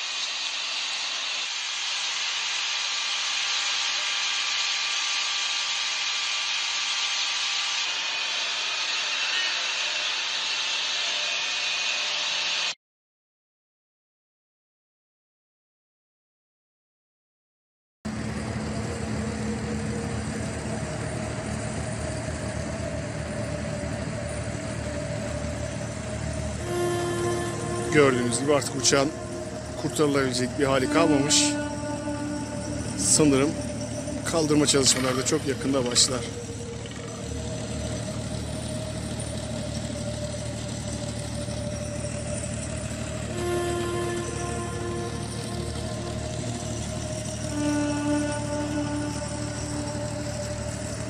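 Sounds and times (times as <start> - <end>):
engine humming: 18.1 - 51.0
motor idling: 18.1 - 51.0
background music: 18.9 - 51.0.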